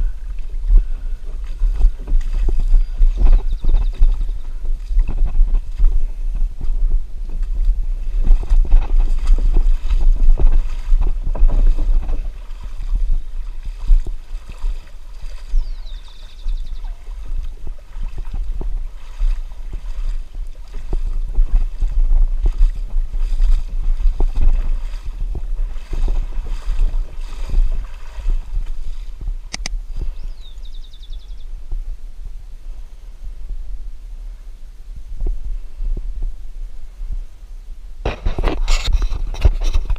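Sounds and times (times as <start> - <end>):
water sloshing around kayak: 0.0 - 31.4
wind rumble on microphone: 0.0 - 39.9.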